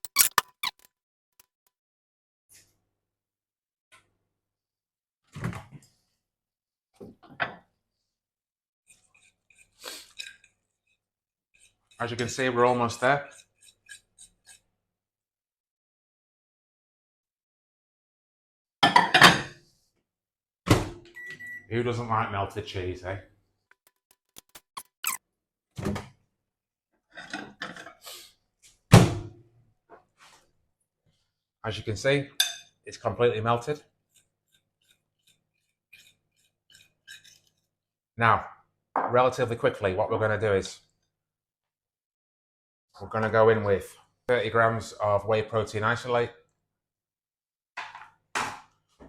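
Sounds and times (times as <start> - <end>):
rubbing and scraping: 23.7 - 25.2, 34.1 - 37.7.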